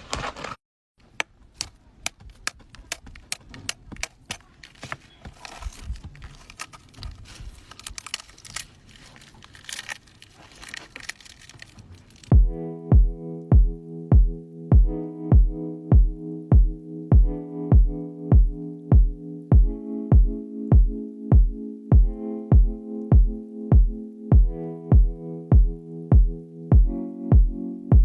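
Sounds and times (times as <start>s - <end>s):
crinkly rustling: 2.3s - 12.4s
music with heavy bass beat: 12.4s - 28.0s.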